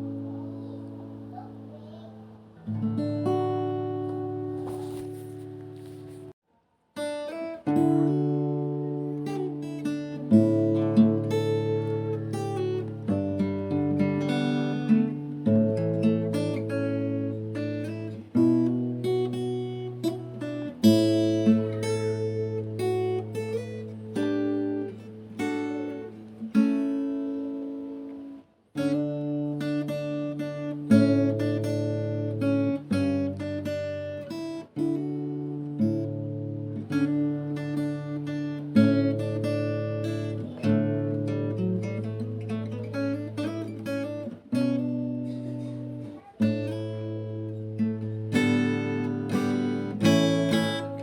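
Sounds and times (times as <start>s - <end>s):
acoustic guitar chords: 0.0s - 6.4s, 7.0s - 51.0s.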